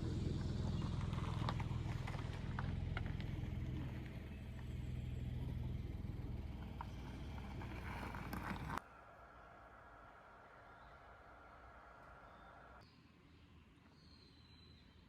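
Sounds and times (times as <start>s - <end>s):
car driving rumble: 0.0s - 8.8s.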